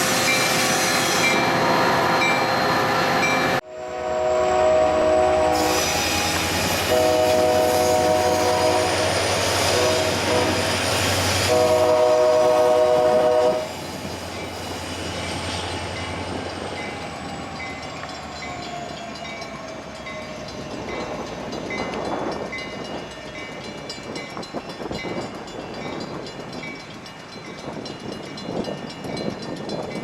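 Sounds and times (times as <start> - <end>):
passing train rumble: 0.0 - 30.0
train horn blasts: 3.6 - 13.8.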